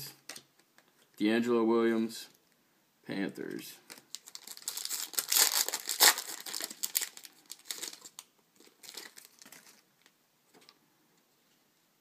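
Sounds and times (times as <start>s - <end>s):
card packaging crinkling: 3.9s - 10.1s.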